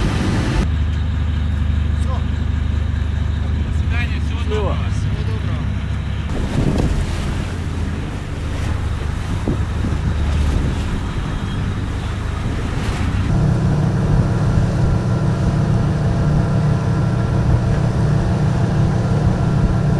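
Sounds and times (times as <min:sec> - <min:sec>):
ship engine humming: 0:00.0 - 0:00.6, 0:05.8 - 0:19.9
wind buffeting microphone: 0:06.3 - 0:19.9.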